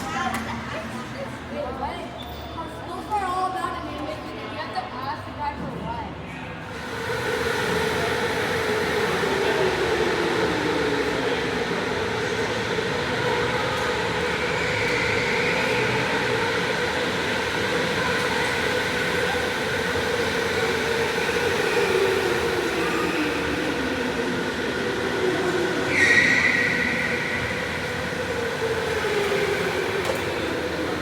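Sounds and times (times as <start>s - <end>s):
electric go-kart motor whining: 6.8s - 31.0s.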